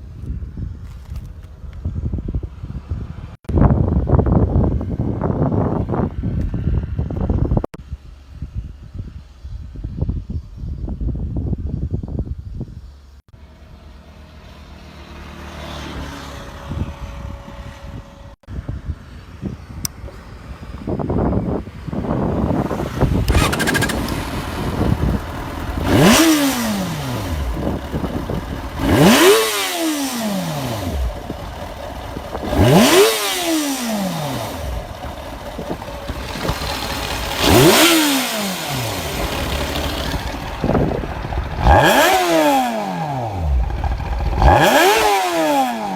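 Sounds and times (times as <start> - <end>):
motorcycle engine revving: 21.9 - 45.9.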